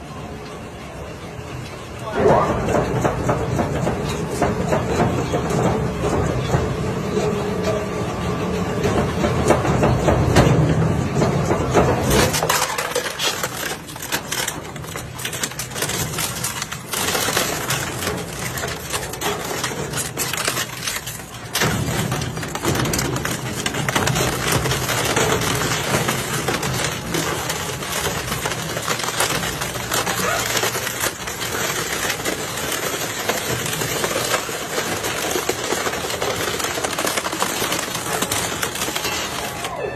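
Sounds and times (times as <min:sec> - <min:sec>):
low mechanical hum: 0:00.0 - 0:39.9
plastic and metal crunching: 0:08.8 - 0:39.9.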